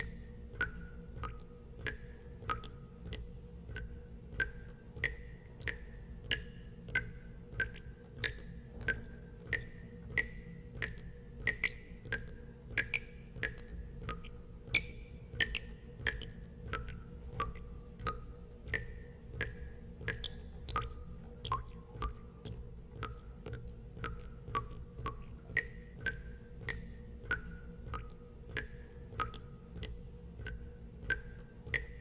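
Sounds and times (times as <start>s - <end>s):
steady low hum: 0.0s - 32.0s
water drops plinking into water: 0.0s - 32.0s.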